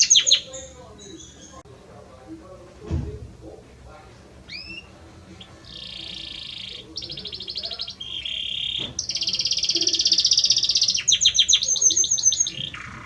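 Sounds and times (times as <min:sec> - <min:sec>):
canary singing: 0:00.0 - 0:01.7, 0:04.4 - 0:13.0.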